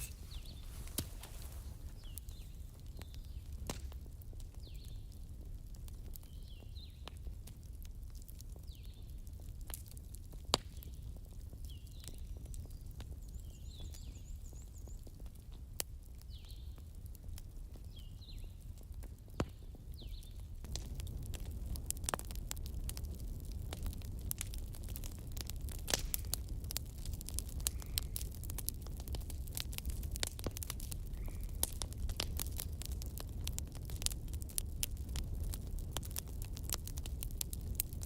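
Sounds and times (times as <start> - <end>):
campfire rumble: 0.0 - 38.0.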